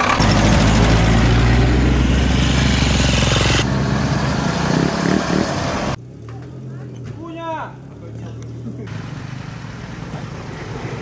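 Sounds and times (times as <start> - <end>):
truck engine running under load: 0.0 - 6.0
vehicle engine: 0.0 - 11.0.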